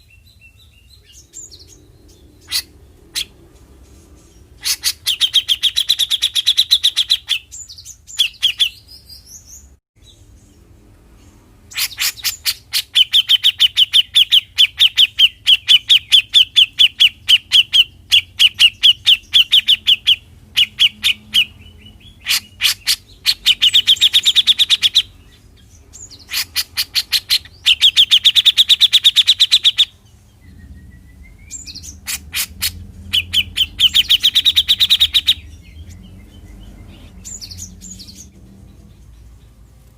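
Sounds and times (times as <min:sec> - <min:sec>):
bird chattering call: 0:26.0 - 0:36.0.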